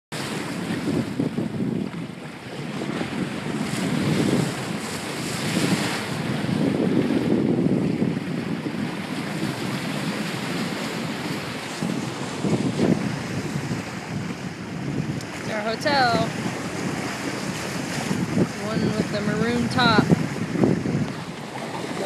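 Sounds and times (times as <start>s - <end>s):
water rushing past boat: 0.1s - 22.0s
wind buffeting microphone: 0.2s - 22.0s.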